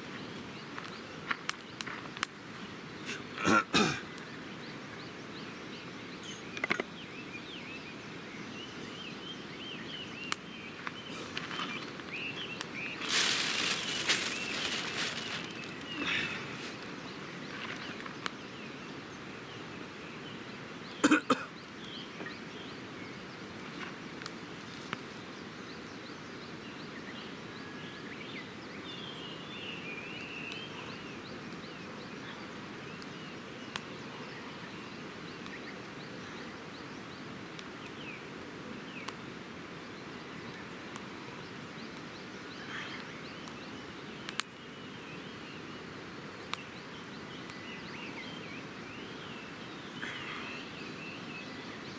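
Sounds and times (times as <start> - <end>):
faint birds chirping: 0.0 - 51.9
steady outdoor hiss: 0.0 - 51.9
campfire crackling and popping: 0.6 - 2.5, 10.2 - 18.4, 23.4 - 25.0, 32.7 - 34.4, 37.4 - 41.2, 41.8 - 44.6, 46.4 - 47.7.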